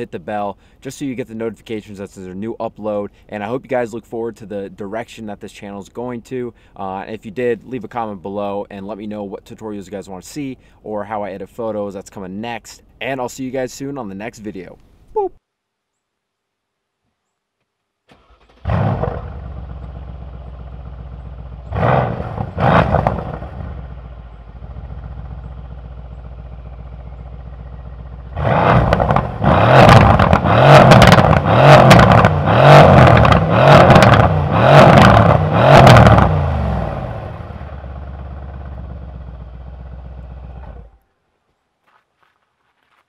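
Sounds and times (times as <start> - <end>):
car engine starting: 18.1 - 41.0
car engine revving: 18.2 - 38.7
car engine idling: 18.7 - 41.0.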